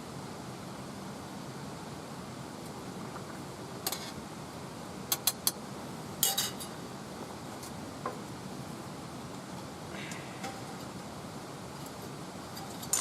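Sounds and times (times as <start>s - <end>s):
steady low hiss: 0.0s - 13.0s
clinks of small metal or glassware: 6.2s - 6.7s, 12.6s - 13.0s
rattle: 12.5s - 13.0s.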